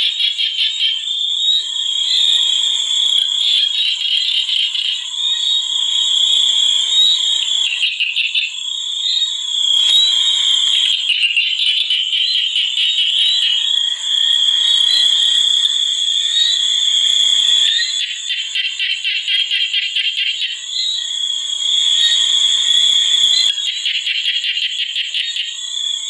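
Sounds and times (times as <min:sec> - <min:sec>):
rapid pulsing animal calls: 0:06.0 - 0:08.6, 0:09.8 - 0:13.8.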